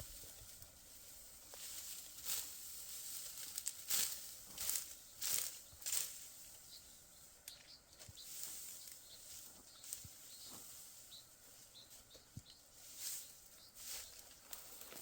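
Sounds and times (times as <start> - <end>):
bird chirps: 4.7 - 15.0.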